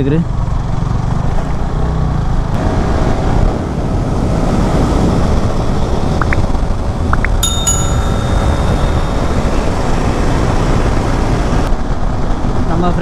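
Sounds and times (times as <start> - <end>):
wind and road noise: 2.6 - 7.5
high steady multi-pitch tone: 7.4 - 11.1.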